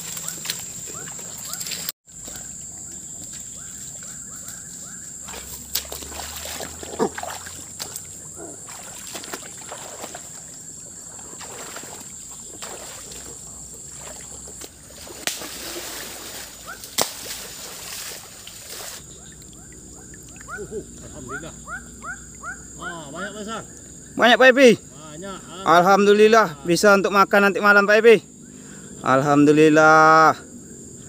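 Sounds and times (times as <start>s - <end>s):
water splashing and sloshing: 0.0s - 24.2s.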